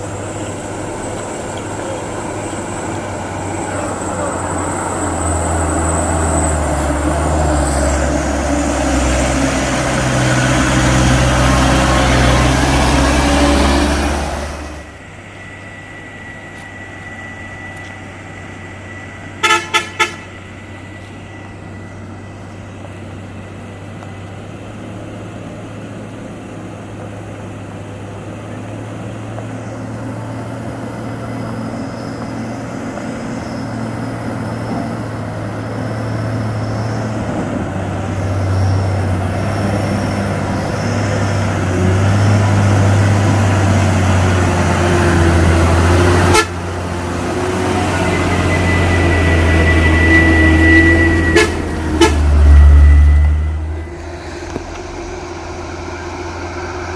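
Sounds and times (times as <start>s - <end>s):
vehicle engine running: 0.0s - 56.9s
vehicle horn toots: 19.4s - 20.5s, 46.2s - 46.7s, 47.8s - 54.0s.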